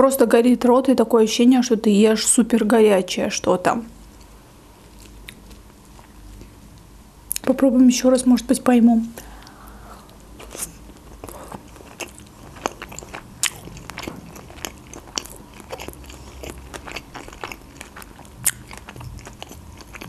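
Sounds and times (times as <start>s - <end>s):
crunchy chewing clicks: 4.9s - 7.5s, 9.4s - 20.0s.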